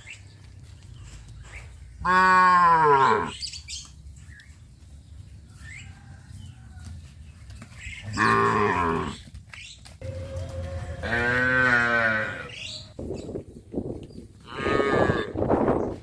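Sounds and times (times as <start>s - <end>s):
cows mooing: 2.0s - 3.4s, 8.1s - 9.2s, 10.0s - 12.7s, 14.5s - 15.4s.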